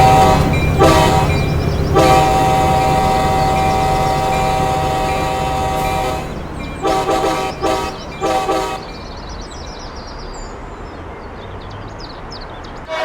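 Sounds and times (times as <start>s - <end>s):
locomotive air horn blasts: 0.0s - 9.0s
low rumble of train: 0.0s - 13.0s.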